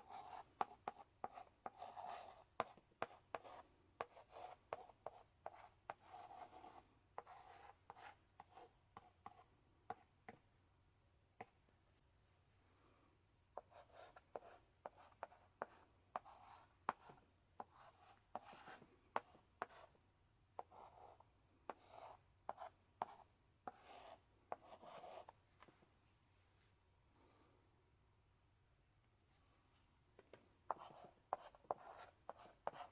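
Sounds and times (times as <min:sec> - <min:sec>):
chalk scratching on blackboard: 0:00.0 - 0:10.0, 0:13.6 - 0:19.9, 0:20.6 - 0:25.3, 0:30.7 - 0:32.9
chalk tapping on blackboard: 0:30.7 - 0:32.9.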